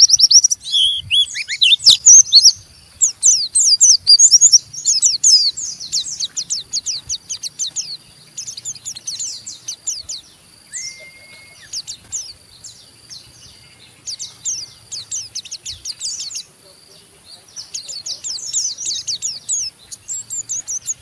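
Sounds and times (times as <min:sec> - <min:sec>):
bird whistle: 0:00.0 - 0:07.8, 0:08.6 - 0:12.0
bird chattering high chirps: 0:00.0 - 0:21.0.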